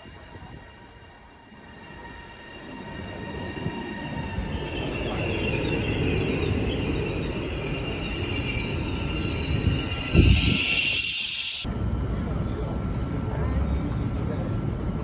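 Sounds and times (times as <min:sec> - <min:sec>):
train wheels squealing on rails: 0:00.0 - 0:11.7
train rumbling: 0:00.0 - 0:15.0.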